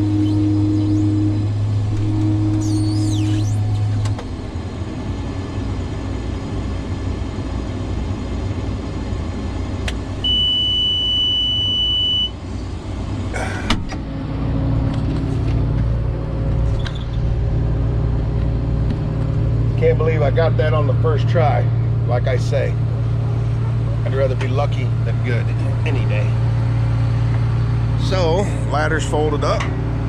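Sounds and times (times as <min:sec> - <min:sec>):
truck diesel engine idling: 0:00.0 - 0:30.0
high beep: 0:10.2 - 0:12.4.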